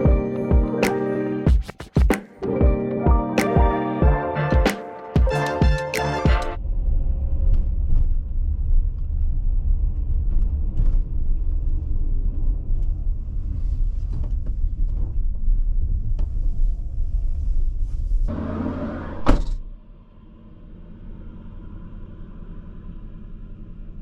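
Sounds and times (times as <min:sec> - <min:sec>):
engine and road noise: 0:06.6 - 0:24.0.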